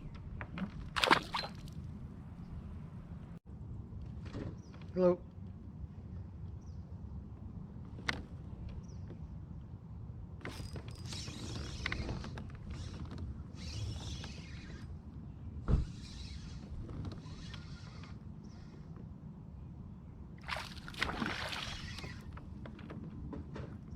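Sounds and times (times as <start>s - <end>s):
kayak paddle swishing through water: 20.4s - 22.4s.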